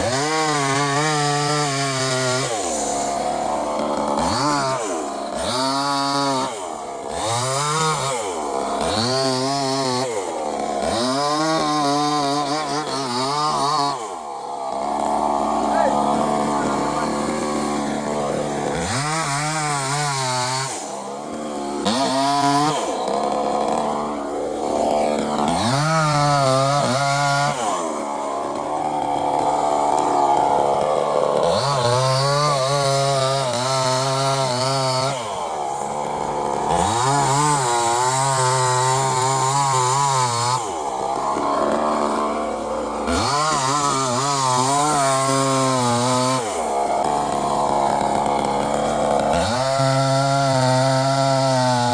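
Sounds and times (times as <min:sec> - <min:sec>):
chainsaw cutting: 0:00.0 - 0:51.9.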